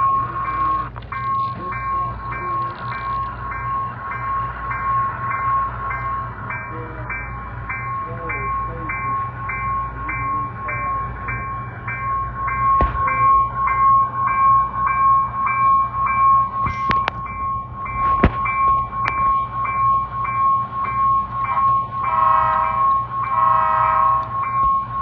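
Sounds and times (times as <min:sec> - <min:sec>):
railroad bell ringing: 0:00.0 - 0:25.0
train rumble: 0:00.0 - 0:25.0
sharp clanks: 0:11.9 - 0:20.0.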